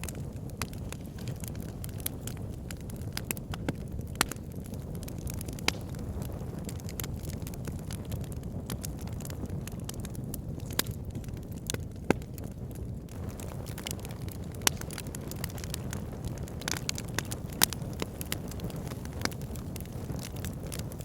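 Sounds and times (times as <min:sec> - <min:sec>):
burning logs crackling and popping: 0:00.0 - 0:21.0
low rumble of flames: 0:00.0 - 0:21.0.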